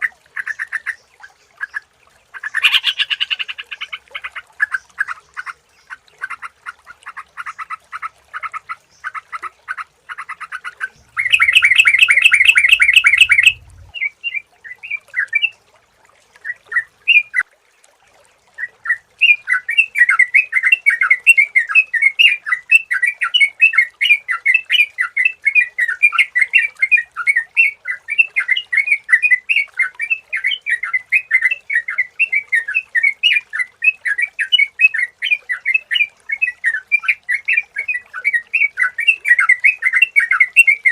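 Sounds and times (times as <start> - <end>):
bird chattering calls: 2.5 - 4.0, 10.2 - 13.8.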